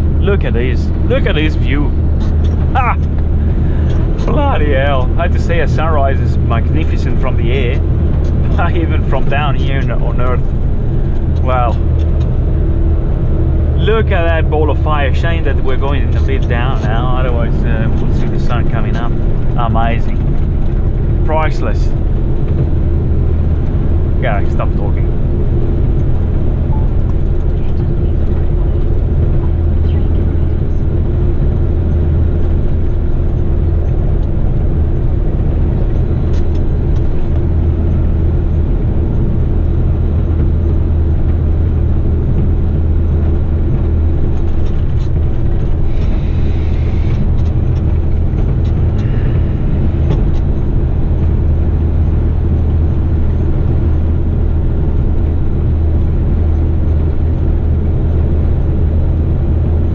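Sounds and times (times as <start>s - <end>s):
road noise: 0.0s - 59.9s
truck diesel engine droning: 0.0s - 59.9s.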